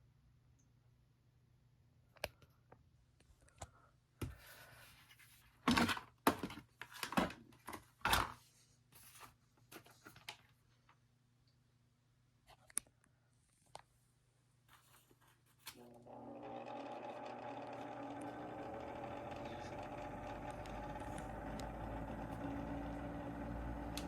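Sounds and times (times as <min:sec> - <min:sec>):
fan motor humming: 0:15.8 - 0:24.0.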